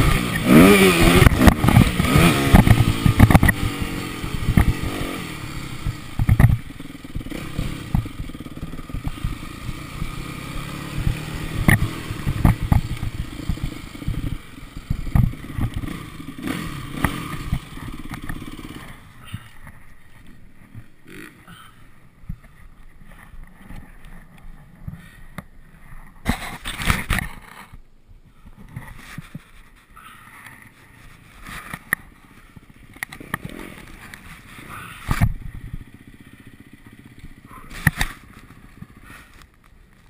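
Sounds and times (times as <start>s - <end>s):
motorbike engine revving: 0.0s - 21.9s, 31.4s - 39.4s.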